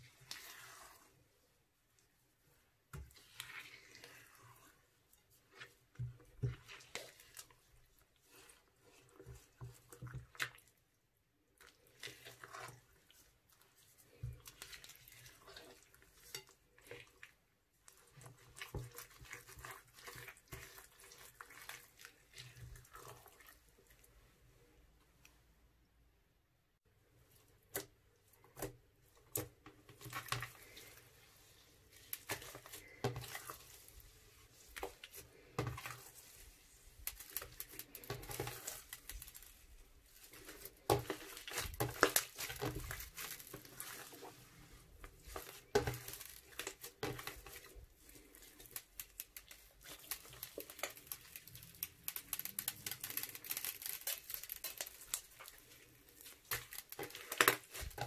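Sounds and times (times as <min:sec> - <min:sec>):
crunchy slime crackling: 0:37.0 - 0:44.3, 0:45.1 - 0:58.0.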